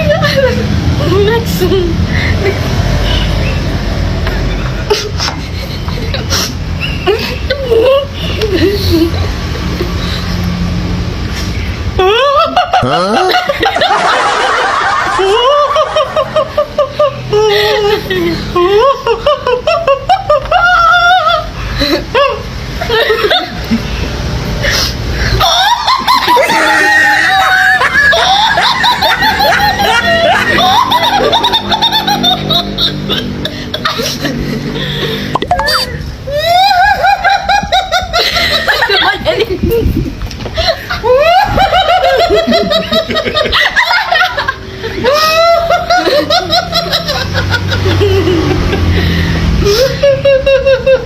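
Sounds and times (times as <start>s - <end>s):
person laughing: 12.0s - 23.8s, 25.4s - 51.0s.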